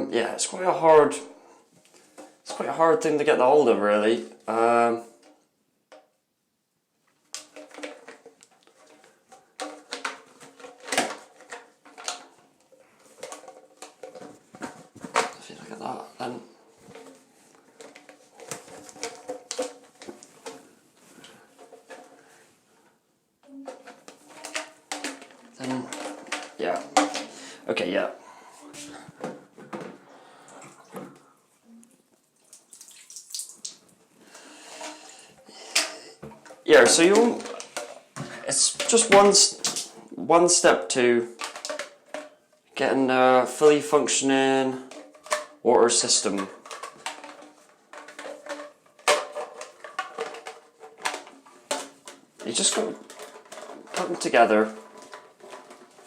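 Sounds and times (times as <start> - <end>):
plastic pipe pieces clattering: 1.8 - 6.2, 7.1 - 28.2, 28.8 - 31.3, 32.5 - 56.0
water trickling from pipes: 30.1 - 35.5.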